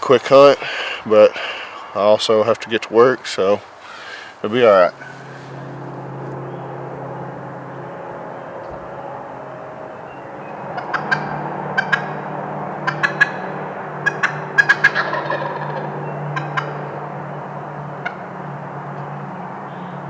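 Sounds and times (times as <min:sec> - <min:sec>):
turkey gobbling: 0:00.0 - 0:05.8, 0:10.0 - 0:19.1.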